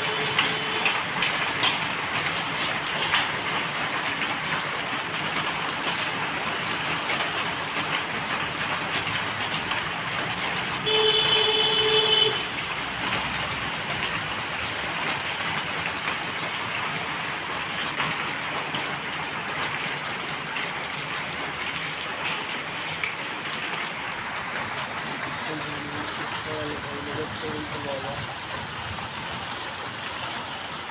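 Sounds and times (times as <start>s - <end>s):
horn sounding: 0.0s - 1.1s, 10.8s - 12.6s
heavy rain pouring: 0.0s - 30.9s.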